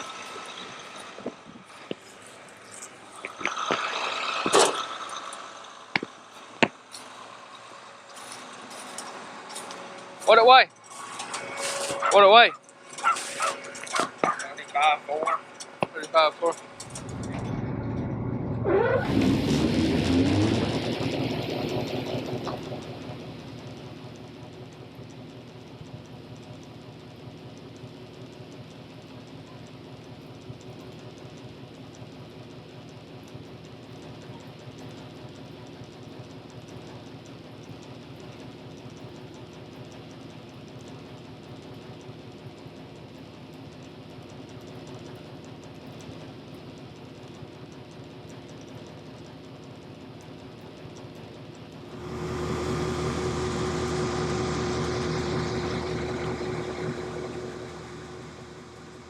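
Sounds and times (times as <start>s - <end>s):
farm machinery engine running: 0.0s - 59.0s
steady hum: 51.8s - 59.0s.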